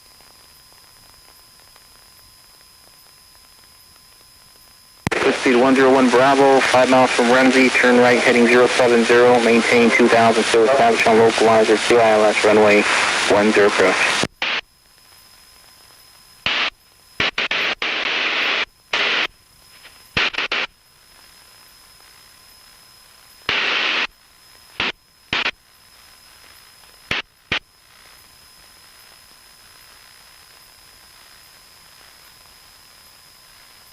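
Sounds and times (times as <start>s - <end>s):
faint radio hiss: 0.0s - 33.9s
radio static bursts: 5.1s - 14.6s, 16.4s - 20.7s, 23.5s - 24.1s, 24.8s - 25.6s, 27.0s - 27.7s.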